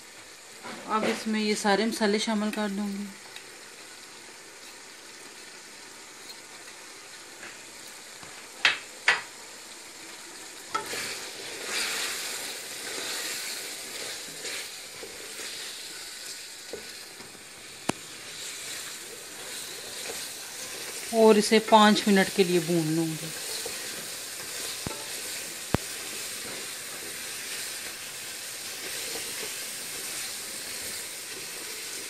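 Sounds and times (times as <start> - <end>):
meat sizzling in hot oil: 0.0 - 32.0
wooden spatula stirring: 18.4 - 21.1.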